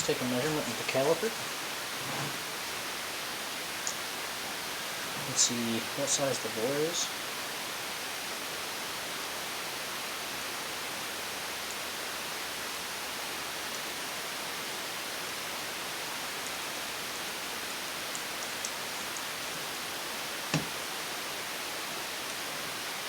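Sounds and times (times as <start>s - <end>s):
steady background hiss: 0.0s - 23.0s
faint light ticks: 18.0s - 19.4s.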